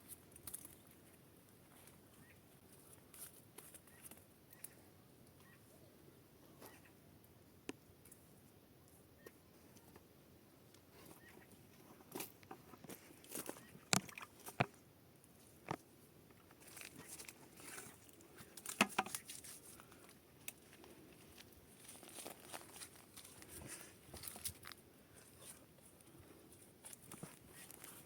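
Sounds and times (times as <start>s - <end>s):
crinkling and rustling: 15.4s - 28.0s.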